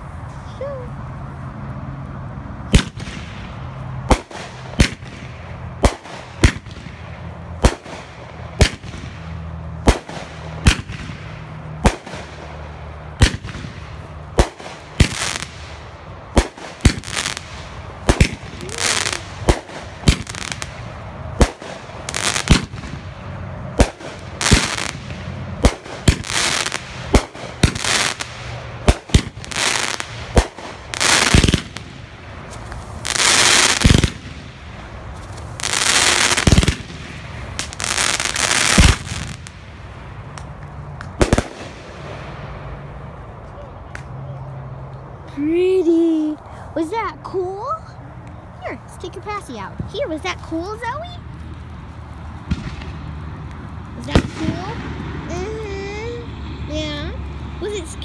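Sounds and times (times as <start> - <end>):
fireworks bangs: 2.7 - 42.6, 52.4 - 53.4, 54.0 - 55.2
fireworks hissing and crackling: 2.7 - 42.8, 48.2 - 58.0.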